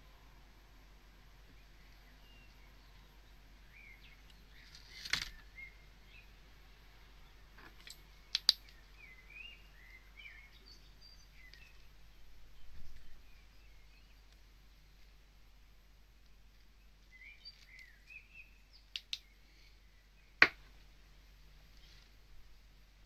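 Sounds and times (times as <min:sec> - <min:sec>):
faint bird chirps: 0:01.4 - 0:06.4, 0:07.0 - 0:15.1, 0:16.2 - 0:20.4
brief rustle: 0:04.5 - 0:05.4
sharp clicks: 0:07.9 - 0:08.8, 0:18.9 - 0:19.3.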